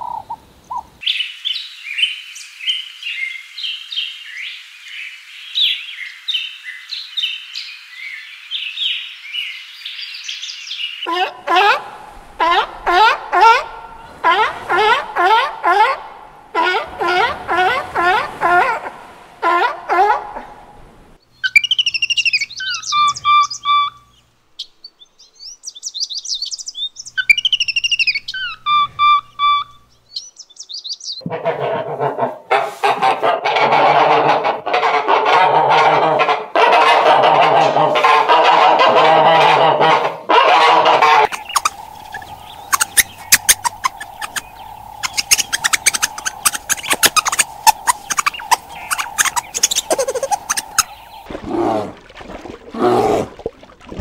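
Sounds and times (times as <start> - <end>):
geese honking and cackling: 11.1 - 20.6, 31.2 - 51.3
short chirping calls: 21.4 - 24.2, 25.7 - 31.2, 41.2 - 51.3
rapid high clicks: 41.3 - 50.9
steady hum: 41.3 - 51.3.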